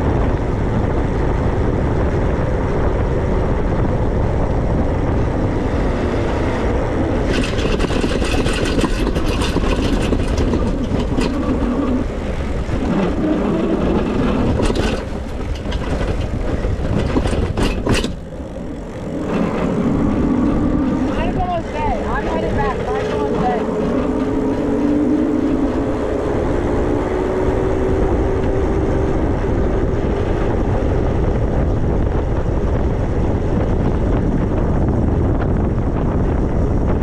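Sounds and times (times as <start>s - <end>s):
wind and road noise: 0.0s - 37.0s
rattling clicks: 7.2s - 12.1s, 12.8s - 19.7s.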